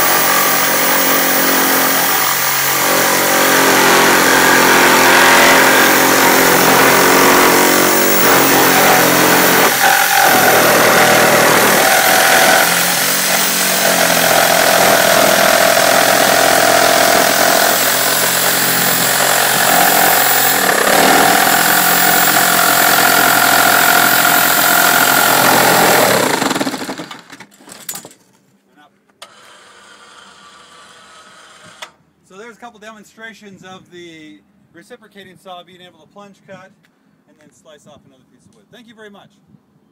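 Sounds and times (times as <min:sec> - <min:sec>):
reciprocating saw cutting wood: 0:00.0 - 0:27.1.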